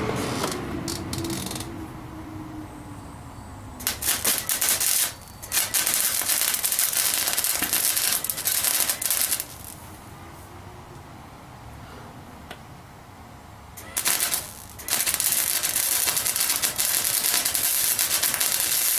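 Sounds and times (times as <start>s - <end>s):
electric welder crackling: 0.0s - 1.7s, 3.8s - 10.0s, 13.8s - 18.9s.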